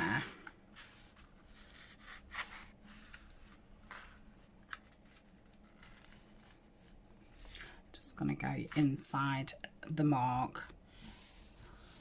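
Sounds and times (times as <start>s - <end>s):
paper being folded by hand: 0.0s - 7.8s
soft scrapes: 10.3s - 12.0s.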